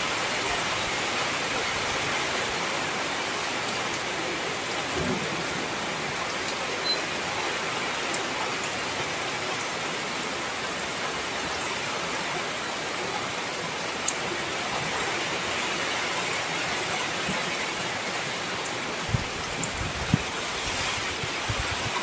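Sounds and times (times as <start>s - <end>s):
heavy rain hiss: 0.0s - 22.0s
raindrop ticks: 19.4s - 19.8s.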